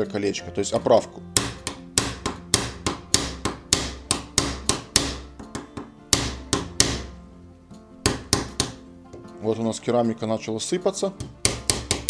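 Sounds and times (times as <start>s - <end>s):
hammer tapping on ceramic: 1.3s - 7.2s, 8.1s - 9.2s, 11.2s - 12.0s.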